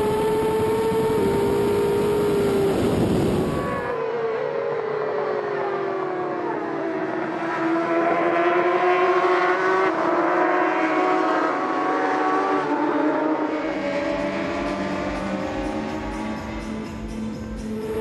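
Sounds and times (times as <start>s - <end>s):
racing motorcycle engine revving: 0.0s - 4.0s, 7.0s - 18.0s
low pulsing beat: 14.1s - 18.0s.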